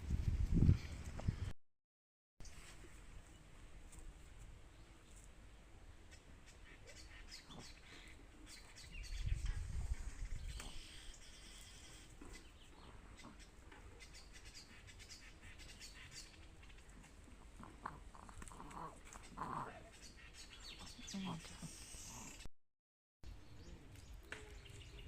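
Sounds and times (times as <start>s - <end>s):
birds chirping: 4.7s - 22.5s, 23.3s - 25.0s.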